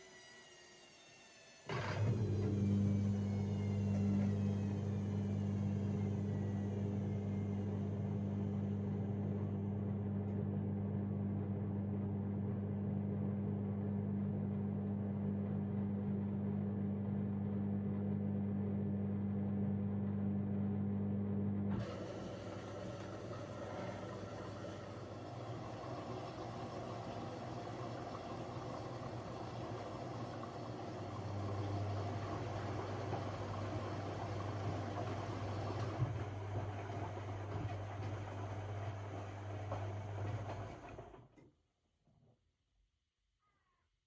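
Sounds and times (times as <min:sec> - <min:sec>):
washing machine pump humming: 0:00.5 - 0:13.6, 0:21.6 - 0:41.2
washing machine running: 0:01.3 - 0:41.3.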